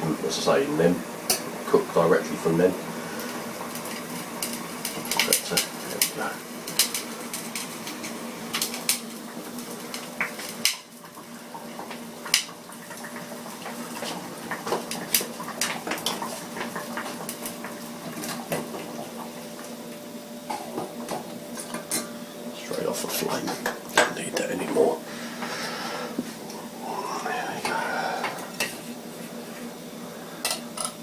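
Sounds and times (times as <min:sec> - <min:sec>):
steady low hum: 0:23.9 - 0:30.6.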